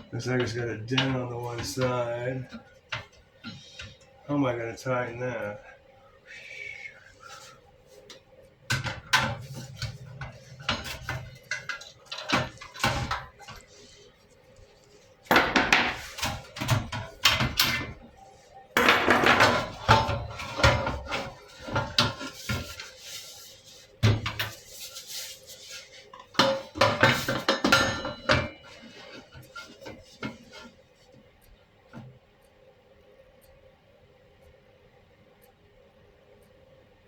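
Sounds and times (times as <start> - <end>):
metal tools clanking: 26.4 - 28.9.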